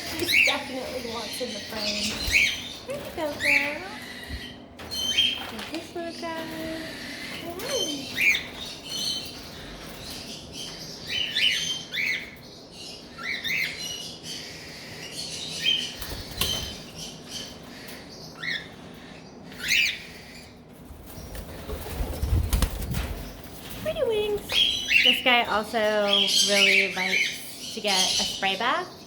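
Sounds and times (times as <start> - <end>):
cockatiels chirping and whistling: 0.0 - 20.5.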